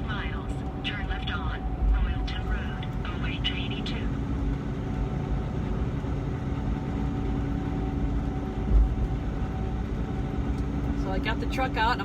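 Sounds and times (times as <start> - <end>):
truck engine and road drone: 0.0 - 12.0.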